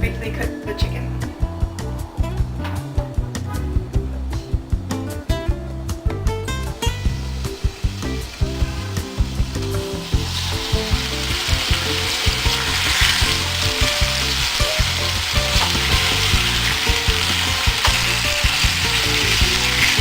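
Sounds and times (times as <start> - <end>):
chicken sizzling in a pan: 7.0 - 20.0.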